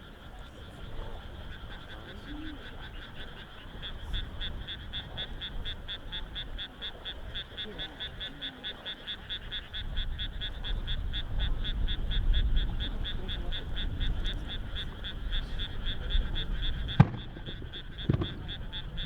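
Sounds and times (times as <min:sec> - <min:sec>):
frogs calling: 0:00.0 - 0:19.0
sharp crack: 0:17.0 - 0:18.7.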